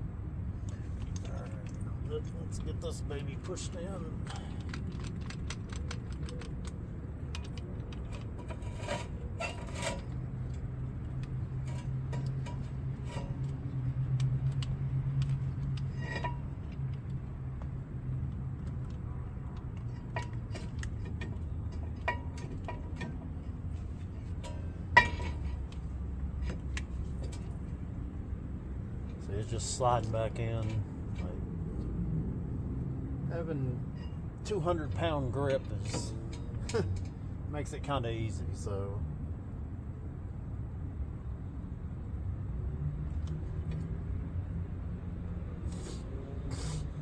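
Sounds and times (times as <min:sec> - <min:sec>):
metal tool clicking on brake caliper: 0:04.2 - 0:27.8.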